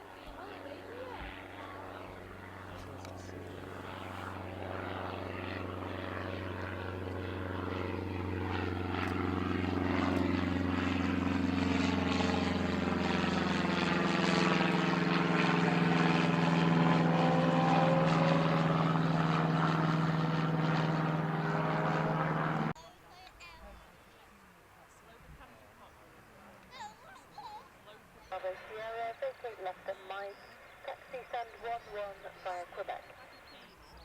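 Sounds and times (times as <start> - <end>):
aircraft engines droning: 0.0 - 22.8, 23.8 - 34.0.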